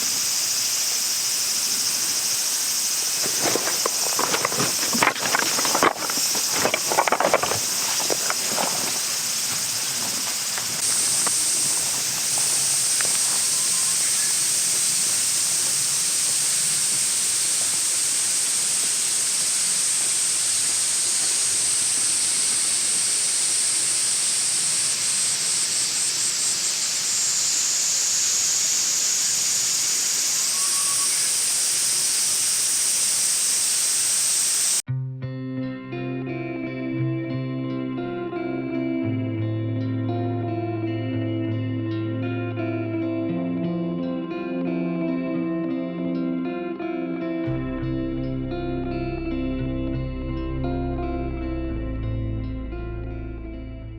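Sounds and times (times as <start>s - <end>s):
insects droning: 0.0s - 34.8s
rustling: 2.8s - 15.1s.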